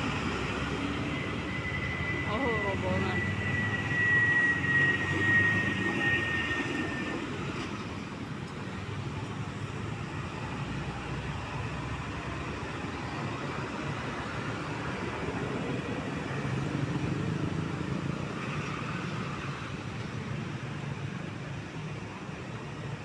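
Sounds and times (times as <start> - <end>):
diesel trucks driving past: 0.0 - 21.7.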